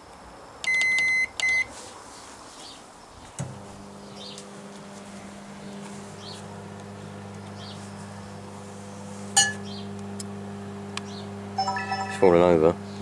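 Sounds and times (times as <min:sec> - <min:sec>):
microwave oven humming: 0:03.2 - 0:13.0.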